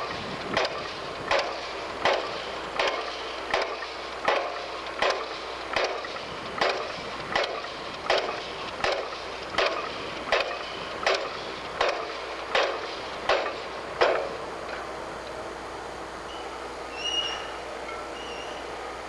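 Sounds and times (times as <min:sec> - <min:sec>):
construction site background noise: 0:00.0 - 0:19.0
pile driver hammering: 0:00.5 - 0:14.4.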